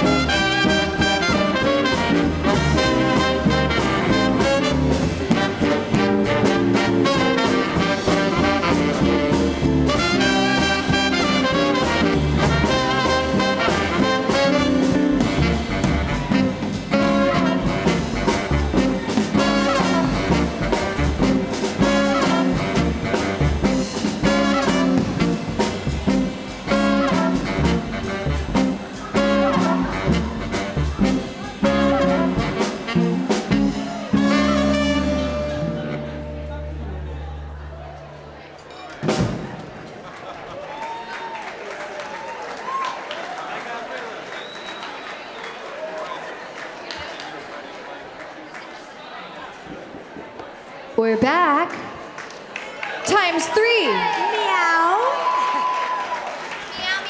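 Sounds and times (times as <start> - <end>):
tenor saxophone: 0.0 - 38.4
upright bass: 0.0 - 38.6
trombone: 0.0 - 39.5
trumpet: 0.0 - 39.5
swing band playing: 0.0 - 40.2
drums: 0.0 - 43.4, 53.0 - 57.0.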